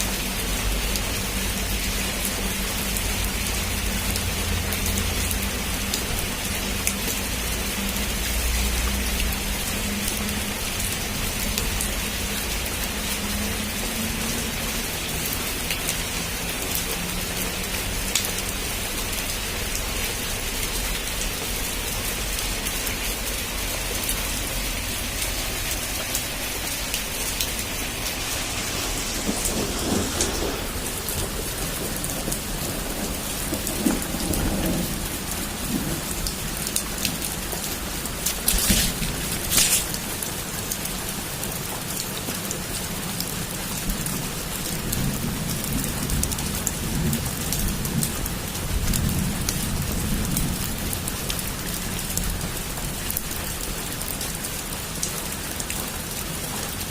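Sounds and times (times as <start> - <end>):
heavy rain falling: 0.0 - 56.9
raindrops pattering on a surface: 0.0 - 56.9
low rumble of thunder: 27.6 - 39.5, 43.9 - 52.4.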